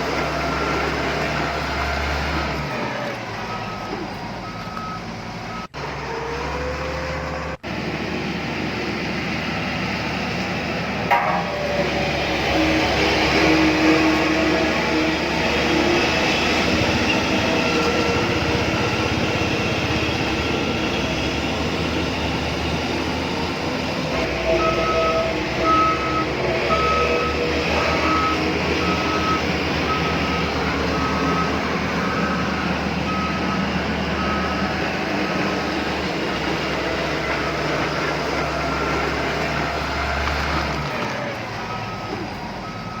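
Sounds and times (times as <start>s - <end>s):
reversing beeper: 11.2s - 36.6s, 41.6s - 43.0s.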